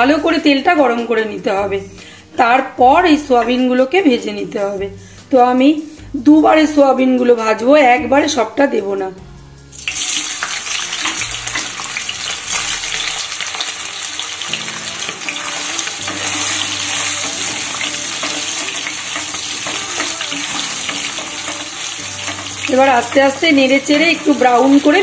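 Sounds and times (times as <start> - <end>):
food sizzling in hot oil: 9.7 - 25.0
wooden spatula stirring: 14.4 - 25.0.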